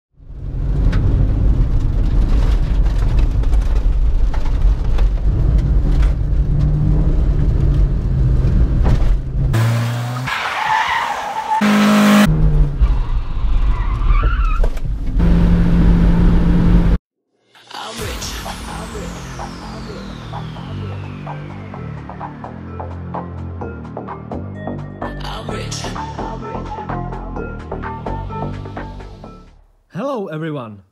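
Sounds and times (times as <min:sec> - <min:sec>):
car engine running under load: 0:14.9 - 0:17.0.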